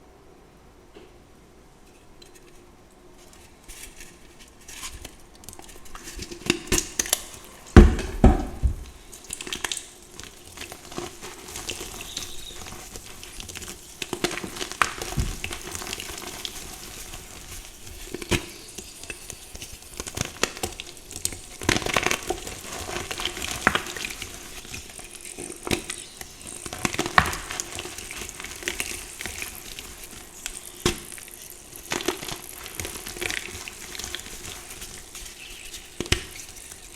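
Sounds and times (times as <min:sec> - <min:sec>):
chalk crunching and crumbling: 0:03.2 - 0:36.9
heavy thump: 0:07.8 - 0:09.0.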